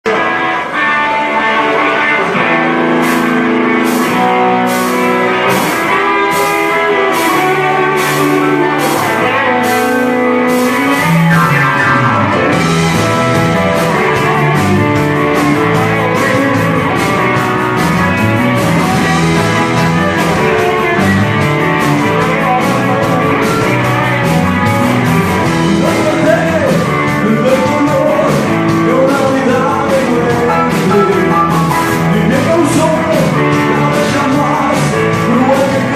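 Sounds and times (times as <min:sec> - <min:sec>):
rock and roll band playing: 0:00.0 - 0:35.9
person singing: 0:25.4 - 0:35.9.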